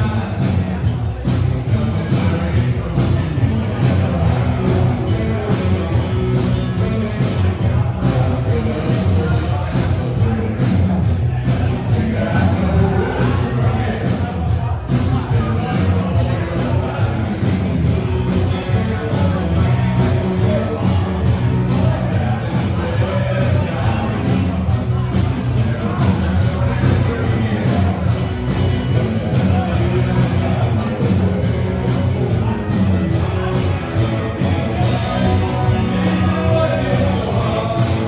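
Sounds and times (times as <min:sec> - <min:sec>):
live rock band playing: 0:00.0 - 0:38.0
person singing: 0:00.0 - 0:38.0.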